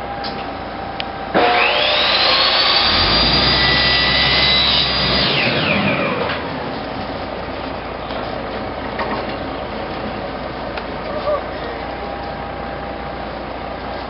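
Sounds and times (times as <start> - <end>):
steady engine hum: 0.0 - 14.0
chainsaw revving: 1.4 - 6.5.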